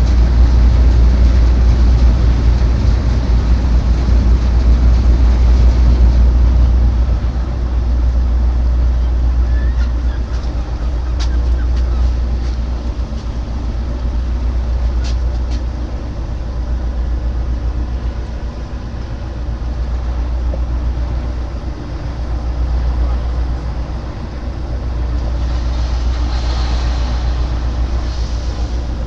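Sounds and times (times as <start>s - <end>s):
heavy machinery rumbling: 0.0s - 29.0s
hiss: 22.7s - 29.0s.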